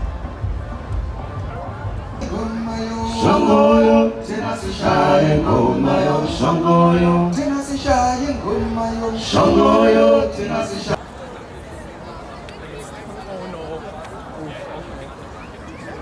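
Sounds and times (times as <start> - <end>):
man singing long notes: 2.2 - 11.0.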